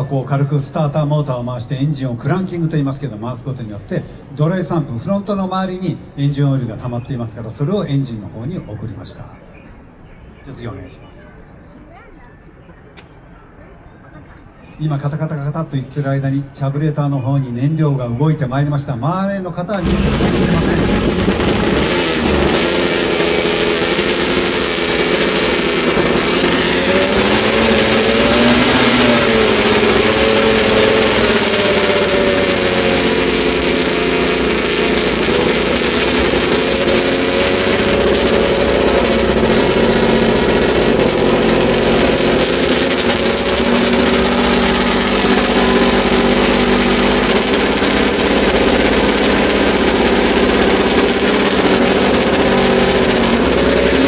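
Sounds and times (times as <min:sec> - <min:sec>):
racing car engine fast idle: 0:19.7 - 0:54.0.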